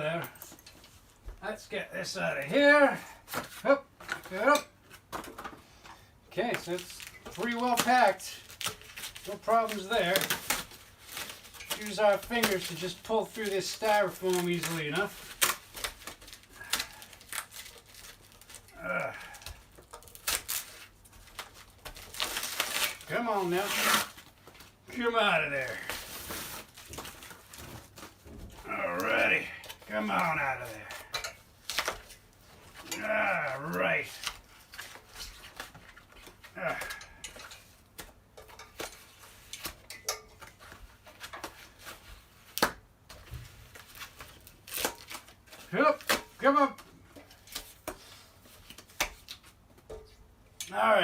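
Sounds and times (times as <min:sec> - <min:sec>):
styrofoam crackling and scraping: 0:06.4 - 0:42.6, 0:43.3 - 0:49.6
person grunting: 0:18.7 - 0:19.5, 0:28.6 - 0:31.1, 0:32.8 - 0:34.2, 0:36.5 - 0:37.2
part scraping in styrofoam packing: 0:19.8 - 0:24.5, 0:25.4 - 0:30.9.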